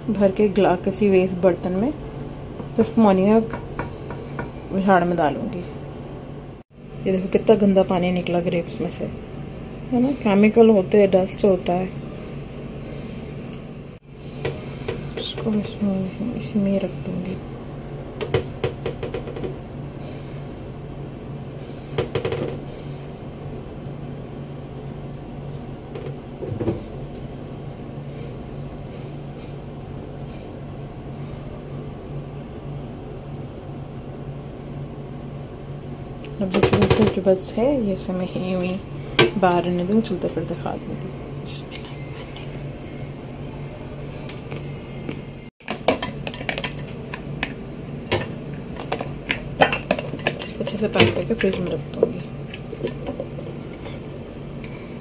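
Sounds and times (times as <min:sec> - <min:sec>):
steady low hum: 0:00.0 - 0:55.0
kitchen containers clattering: 0:48.1 - 0:54.1.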